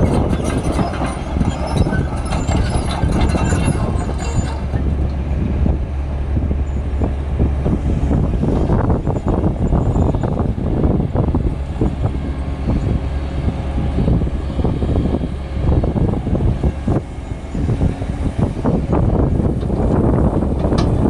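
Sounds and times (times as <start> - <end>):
metal knocks and clanks: 0.0 - 5.1, 19.5 - 21.0
excavator engine running: 0.0 - 21.0.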